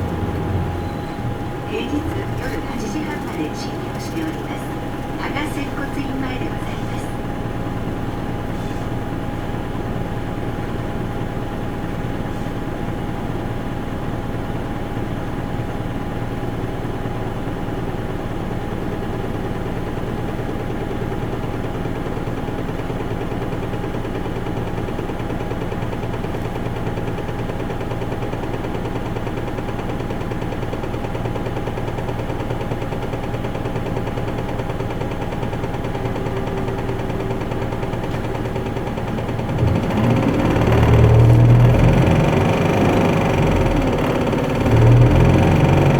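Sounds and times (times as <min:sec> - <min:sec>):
constant whine: 0:00.0 - 0:08.5, 0:33.4 - 0:45.9
bus diesel engine running: 0:00.0 - 0:45.9.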